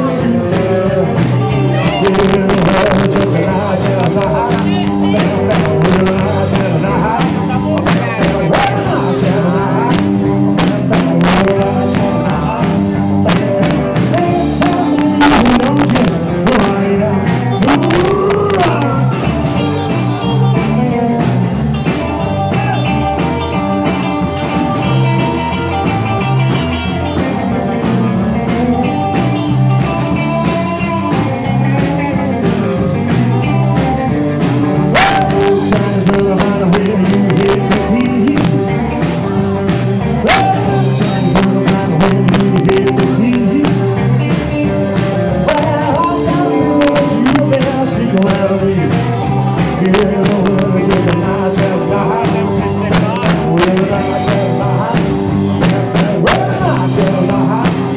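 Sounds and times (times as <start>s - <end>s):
rock band playing: 0.0s - 57.9s.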